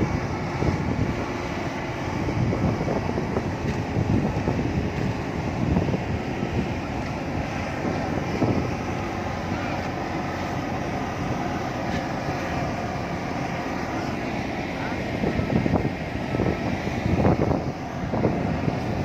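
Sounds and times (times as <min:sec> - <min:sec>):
engines rumbling: 0:00.0 - 0:19.0.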